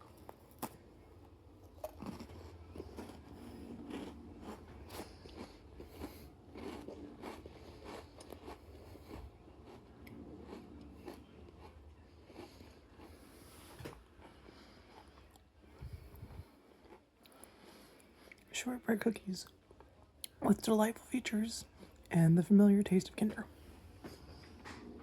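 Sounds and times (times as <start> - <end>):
person chewing crunchy cookie: 0.0 - 18.5.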